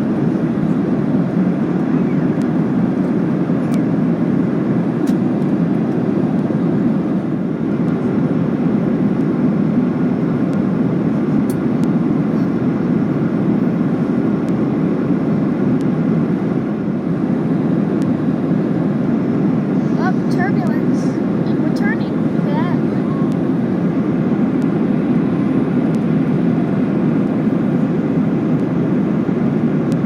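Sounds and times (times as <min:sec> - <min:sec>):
airplane cabin engine rush: 0:00.0 - 0:30.0.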